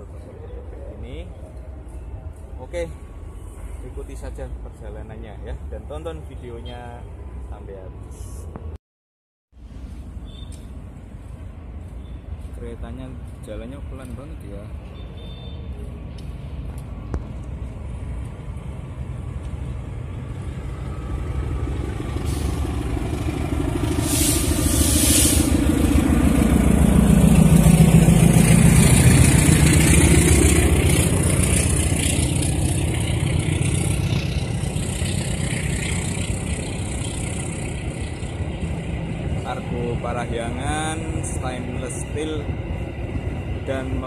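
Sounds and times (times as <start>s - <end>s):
diesel locomotive engine passing: 0.0s - 8.5s, 9.6s - 44.0s
train coaches rolling on rails: 17.8s - 44.0s.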